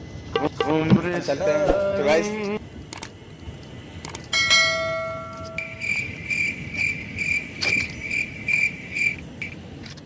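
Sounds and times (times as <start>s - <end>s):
crickets chirping: 4.6s - 9.6s.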